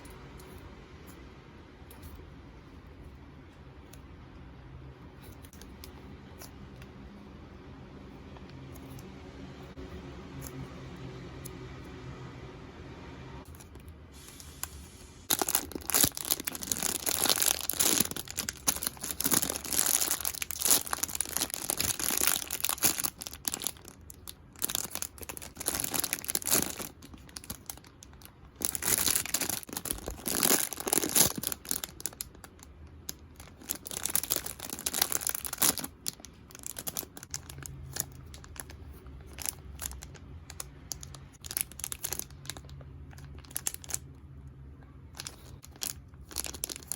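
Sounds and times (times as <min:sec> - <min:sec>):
packaging crinkling and tearing: 0:13.5 - 0:44.1, 0:45.1 - 0:46.9.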